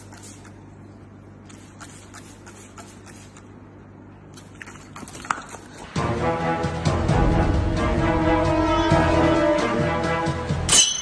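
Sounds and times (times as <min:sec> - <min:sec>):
spray bottle clicking and spritzing: 0:01.5 - 0:03.5.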